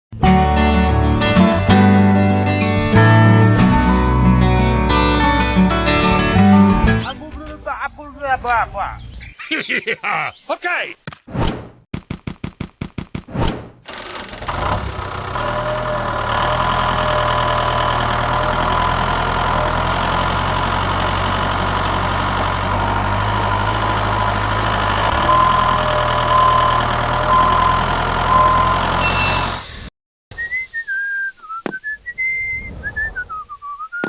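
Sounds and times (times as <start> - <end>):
small engine starting and idling: 13.8 - 29.9.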